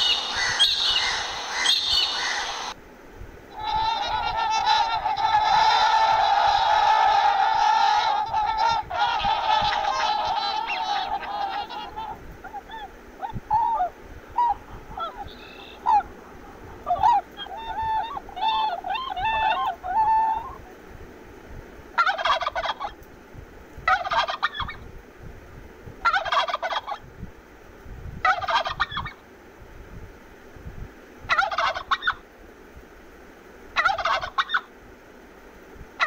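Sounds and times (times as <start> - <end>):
swan calling: 0.0 - 2.8, 3.5 - 20.7
turkey gobbling: 0.0 - 2.8, 3.5 - 20.6, 22.0 - 23.0, 23.9 - 24.8, 26.0 - 27.0, 28.2 - 29.2, 31.3 - 32.2, 33.8 - 34.7.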